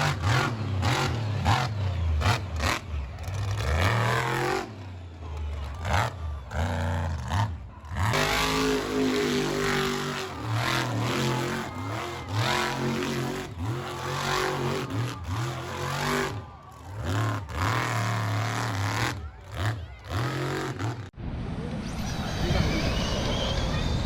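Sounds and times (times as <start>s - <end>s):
vehicle engine revving: 0.0s - 21.2s.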